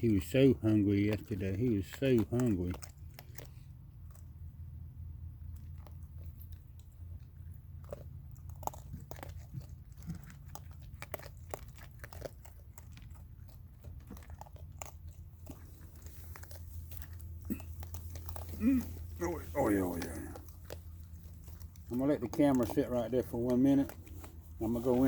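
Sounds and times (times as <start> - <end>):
raccoons crunching dry food: 0.0 - 25.0
steady low hum: 0.0 - 25.0.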